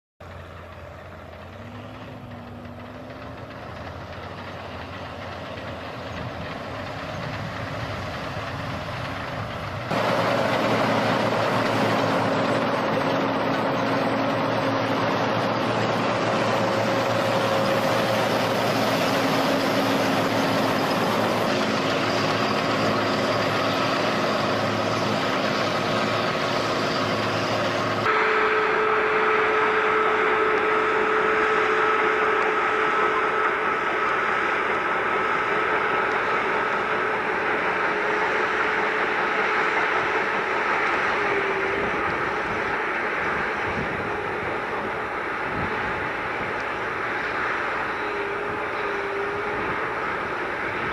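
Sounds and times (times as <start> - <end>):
tractor engines droning: 0.2 - 50.9.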